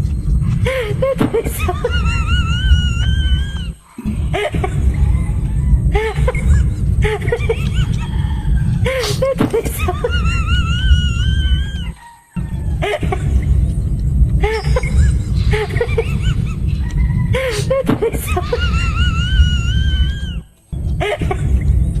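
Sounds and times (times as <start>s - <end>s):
high wavering voice-like squeals: 0.0s - 22.0s
bass-heavy background music: 12.4s - 17.4s.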